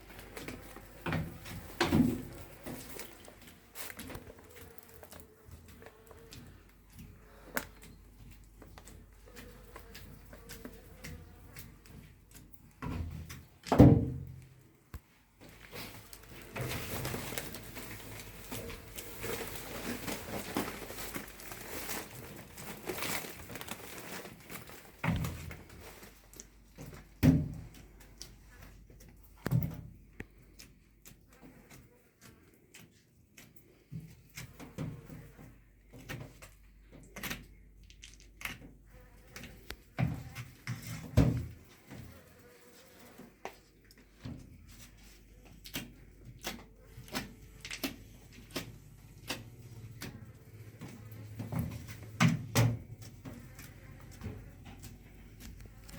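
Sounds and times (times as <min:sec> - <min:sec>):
rustling and scraping: 0:00.0 - 0:55.9
objects knocking and thudding: 0:00.2 - 0:03.2, 0:12.8 - 0:14.4.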